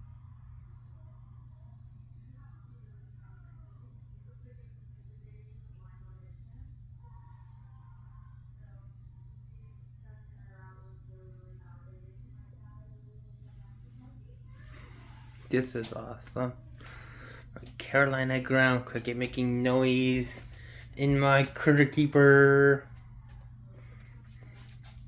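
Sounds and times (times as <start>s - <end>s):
cricket trilling: 1.4s - 18.8s.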